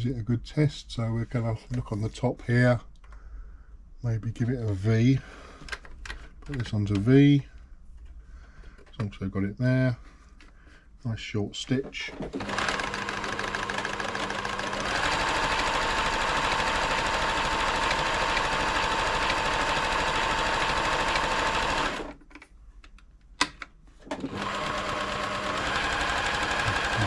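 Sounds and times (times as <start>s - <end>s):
sewing machine stitching: 12.0s - 22.2s, 24.0s - 27.0s.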